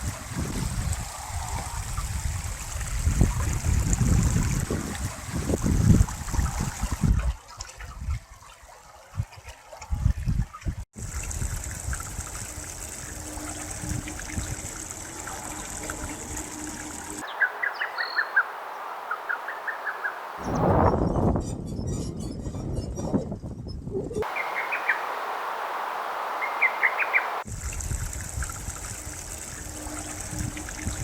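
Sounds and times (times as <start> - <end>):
water trickling and flowing: 0.0 - 20.8, 24.2 - 31.0
small bird chirping: 17.2 - 23.1, 24.2 - 27.4.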